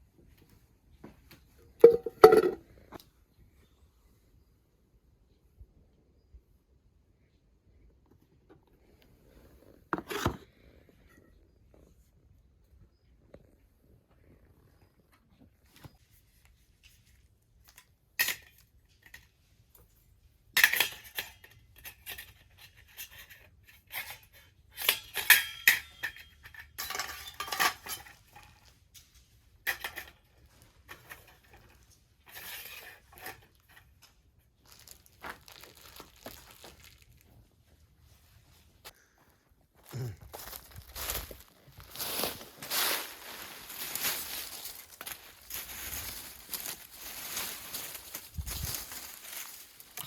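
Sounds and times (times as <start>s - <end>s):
metal clinking and scraping: 1.8s - 2.6s, 20.6s - 34.2s
rustling: 30.4s - 38.9s, 40.4s - 50.0s.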